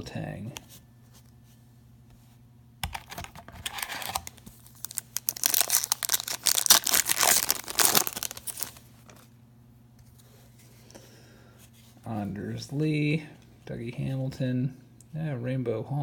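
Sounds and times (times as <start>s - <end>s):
foil wrapper tearing and crinkling: 3.0s - 9.3s.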